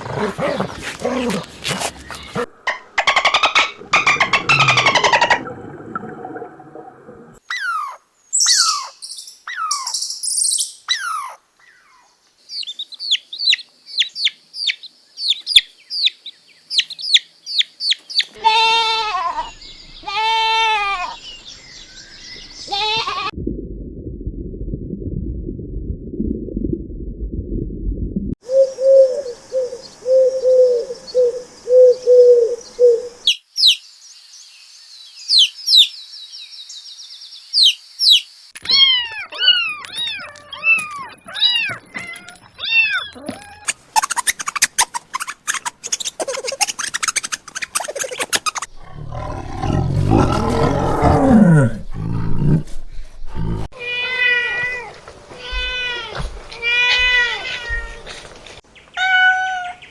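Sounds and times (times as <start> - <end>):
low falling animal call: 0.0 - 7.0, 48.7 - 53.7.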